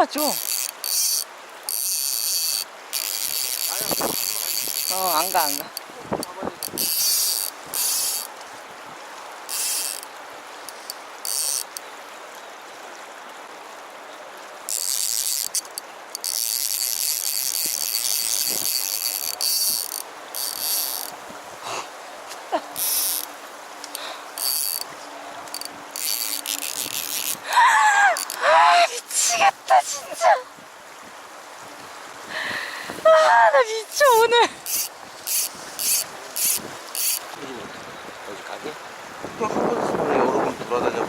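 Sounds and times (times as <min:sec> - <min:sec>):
fly reel drag ratcheting: 0:00.2 - 0:08.4, 0:09.5 - 0:11.9, 0:14.7 - 0:21.2, 0:22.8 - 0:30.2, 0:33.9 - 0:37.3.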